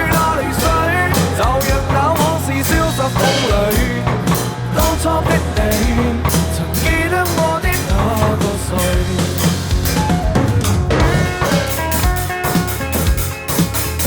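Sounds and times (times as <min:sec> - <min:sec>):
recorded song with singing: 0:00.0 - 0:10.2
drum kit playing: 0:00.0 - 0:14.0.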